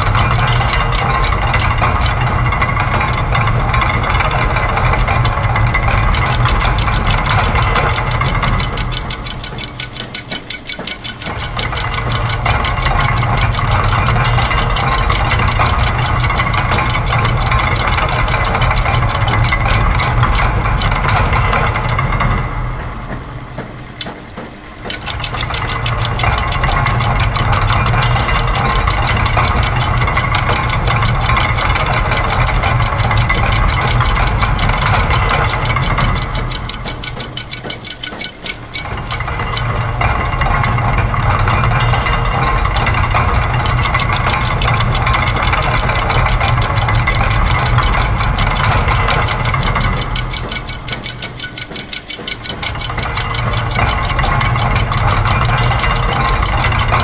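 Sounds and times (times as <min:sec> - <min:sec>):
low machine hum: 0:00.0 - 0:57.0
mechanical clicking and clatter: 0:00.0 - 0:57.0.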